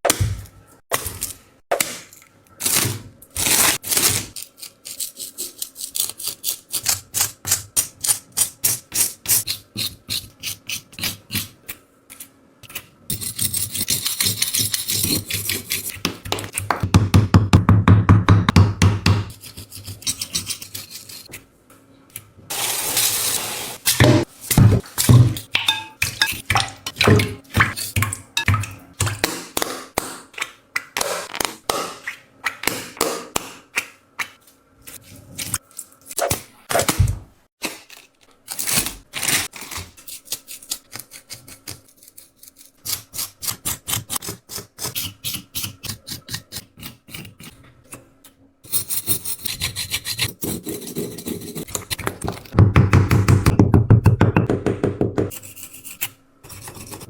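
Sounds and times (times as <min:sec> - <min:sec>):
taps clicks and scrapes of objects: 0:43.5 - 0:57.0.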